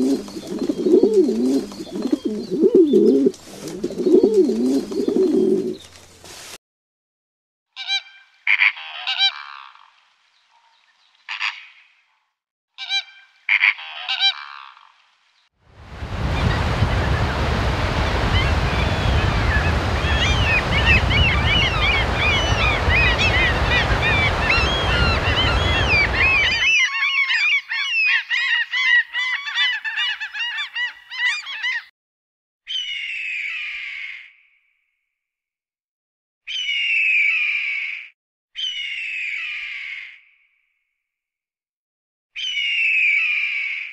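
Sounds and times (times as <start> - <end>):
large birds honking: 18.1 - 26.7.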